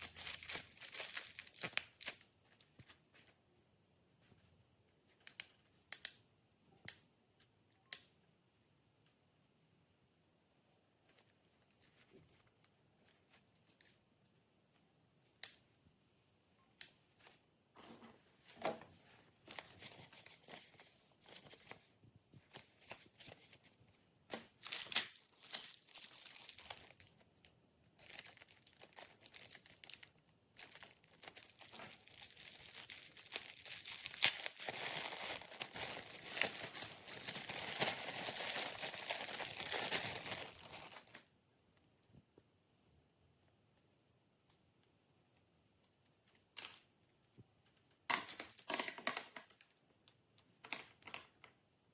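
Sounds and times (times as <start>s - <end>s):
crinkling and tearing packaging: 0.0s - 3.0s, 24.3s - 41.2s
packaging being opened by hand: 0.0s - 3.0s, 24.3s - 41.2s.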